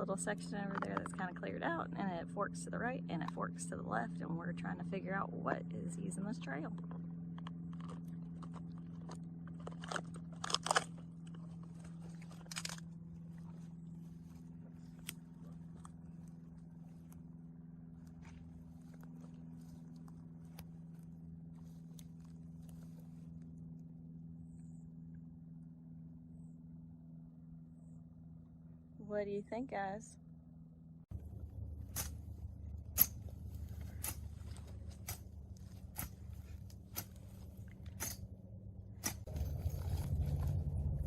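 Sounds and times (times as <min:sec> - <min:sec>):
steady low hum: 0:00.0 - 0:41.0
crunching rustles and clicks: 0:06.6 - 0:23.8, 0:31.1 - 0:41.0.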